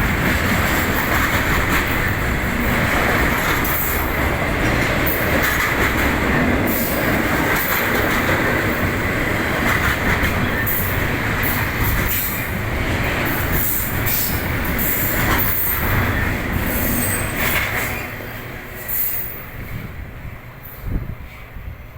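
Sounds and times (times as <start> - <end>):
train wheels clattering on rails: 0.0 - 21.6
train wheels squealing: 13.2 - 19.9, 20.6 - 21.6.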